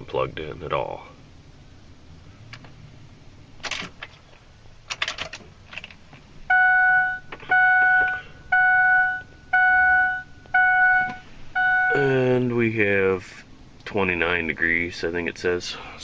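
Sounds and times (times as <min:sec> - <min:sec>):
dashboard warning chime: 0:06.5 - 0:12.5.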